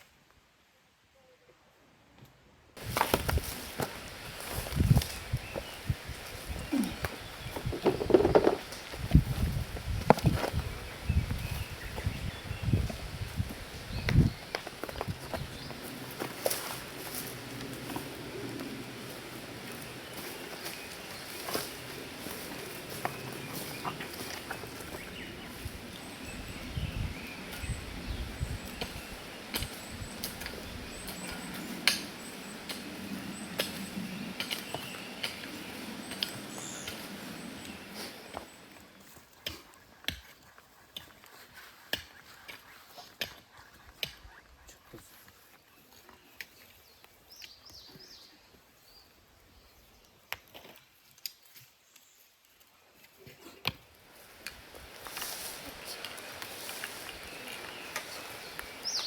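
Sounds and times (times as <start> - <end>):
bird chirping: 57.1 - 59.0.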